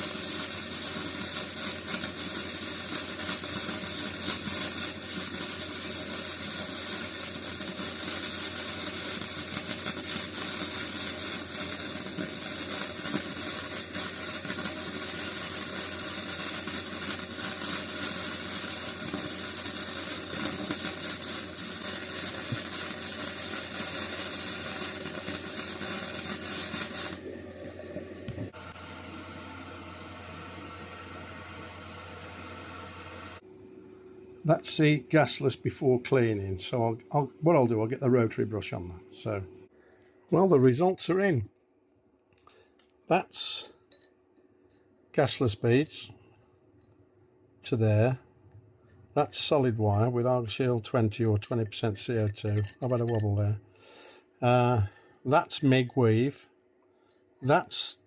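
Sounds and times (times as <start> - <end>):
welding arc crackling and hissing: 0.0 - 27.4.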